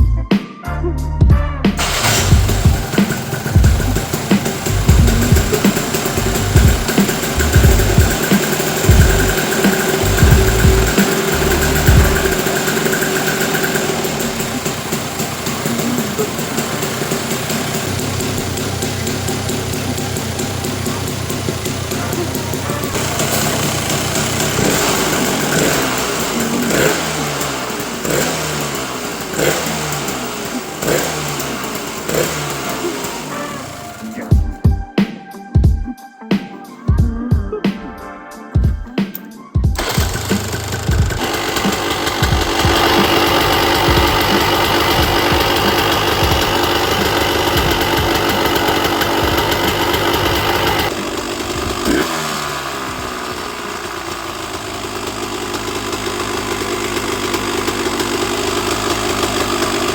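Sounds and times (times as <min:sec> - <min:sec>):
two-stroke engine revving: 0:01.7 - 0:34.5, 0:39.7 - 0:59.9.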